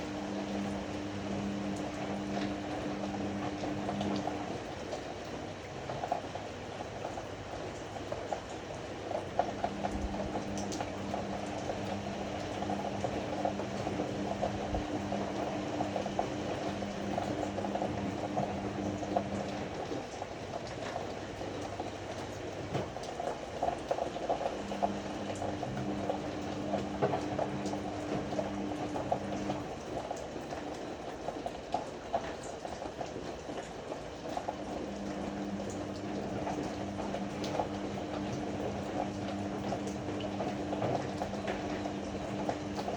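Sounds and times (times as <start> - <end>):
drum motor humming: 0.0 - 4.7, 9.4 - 19.9, 24.3 - 29.8, 34.4 - 42.9
water sloshing in drum: 0.0 - 42.9.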